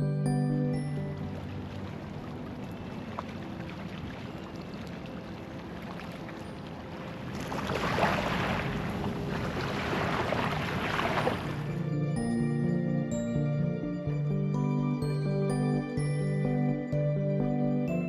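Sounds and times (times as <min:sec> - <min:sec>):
faint background music: 0:00.0 - 0:18.0
water rushing: 0:00.8 - 0:12.3.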